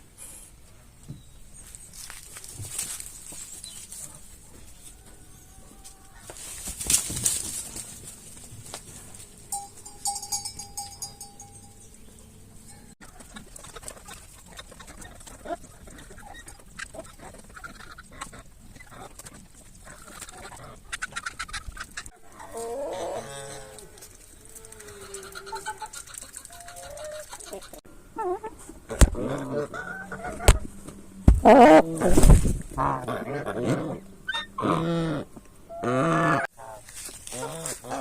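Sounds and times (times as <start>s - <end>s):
chickens clucking: 12.6s - 38.0s
geese calling: 29.2s - 30.7s, 32.7s - 38.0s.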